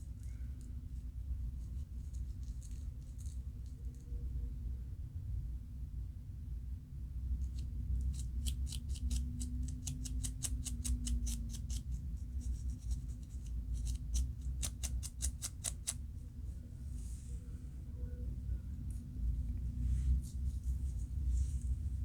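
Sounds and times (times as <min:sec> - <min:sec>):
steady low hum: 0:04.2 - 0:22.0
rapid scratching of scalp: 0:07.5 - 0:16.0.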